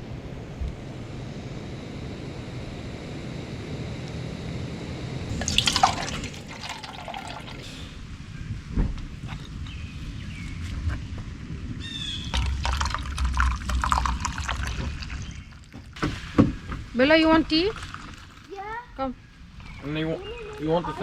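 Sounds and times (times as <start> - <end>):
splashing dripping water: 5.3 - 7.7, 12.3 - 16.1, 17.3 - 18.5
thump: 16.0 - 16.9.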